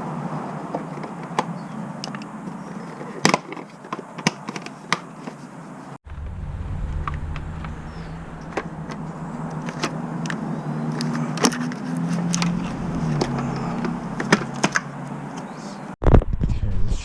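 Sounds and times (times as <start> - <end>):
steady low hum: 6.0 - 10.9, 12.3 - 14.6.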